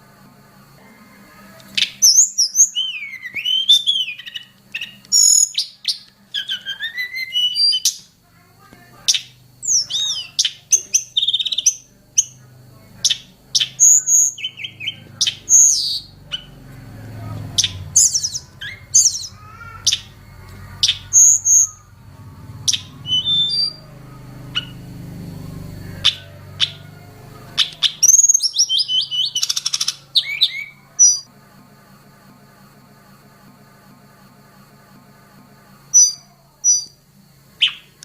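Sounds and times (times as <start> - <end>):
faint steady high tone: 0.0 - 38.0
bird chirping and warbling: 1.7 - 8.2, 9.1 - 12.4, 13.0 - 31.3, 36.0 - 37.0, 37.6 - 38.0.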